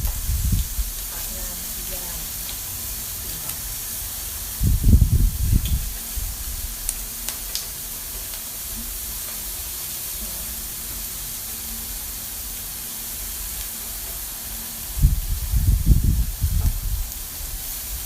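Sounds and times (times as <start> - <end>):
low rumbling bumps: 0.0 - 1.3, 4.6 - 6.8, 15.0 - 17.1
meat sizzling on grill: 0.0 - 18.0.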